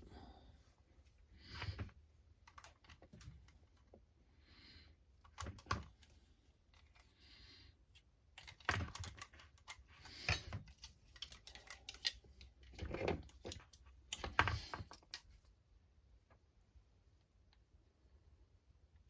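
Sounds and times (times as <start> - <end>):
plastic parts clicking and knocking: 5.2 - 6.1, 8.3 - 15.4.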